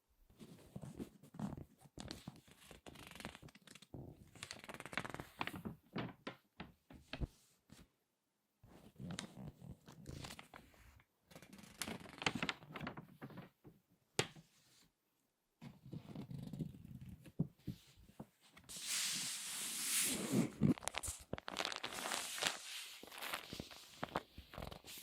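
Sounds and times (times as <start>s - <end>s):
magazine pages crinkling: 2.6s - 3.8s, 20.6s - 25.0s.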